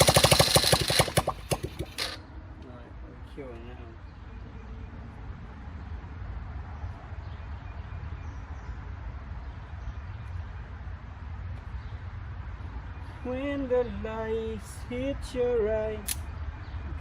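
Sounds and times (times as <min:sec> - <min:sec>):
atv engine idling: 0:00.0 - 0:02.2.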